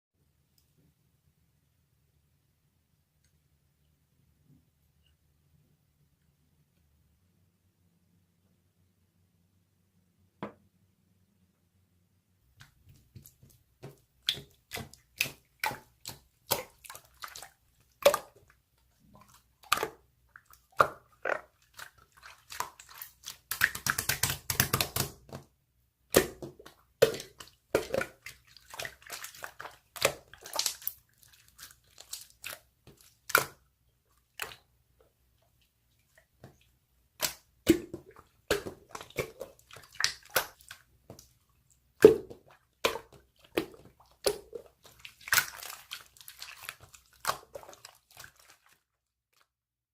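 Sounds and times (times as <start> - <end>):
sticky slime crackling: 42.8 - 48.7.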